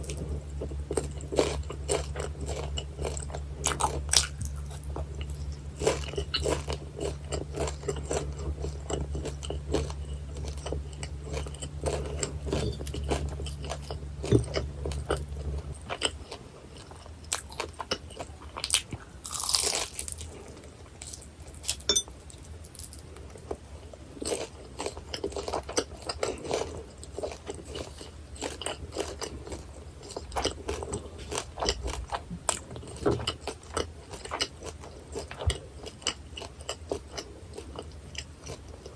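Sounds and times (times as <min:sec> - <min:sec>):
low hum: 0:00.0 - 0:24.1
crunching bites and chewing: 0:00.0 - 0:38.9.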